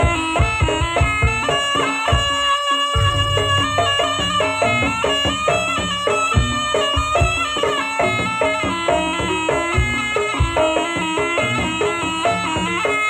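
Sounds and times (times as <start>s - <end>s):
drums: 0.0s - 13.0s
reedy shawm melody: 0.0s - 13.0s
gong strikes: 3.0s - 6.0s.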